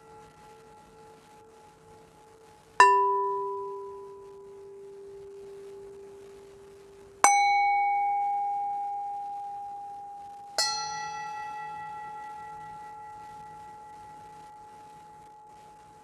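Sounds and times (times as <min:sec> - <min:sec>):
lower bell tone: 0:02.8 - 0:06.0, 0:07.2 - 0:15.5.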